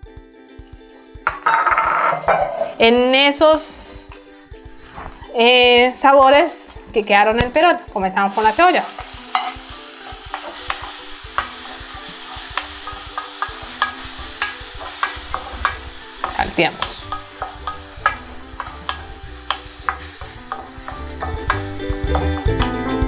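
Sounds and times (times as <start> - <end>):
onion sizzling in hot oil: 0.5 - 23.0
wooden spoon scraping a pan: 1.3 - 2.9, 8.4 - 22.7.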